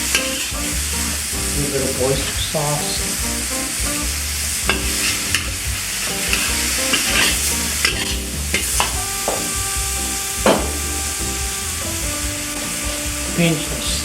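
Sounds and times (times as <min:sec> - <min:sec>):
food sizzling in a hot pan: 0:00.0 - 0:13.4
utensil scraping against pan: 0:04.7 - 0:09.4.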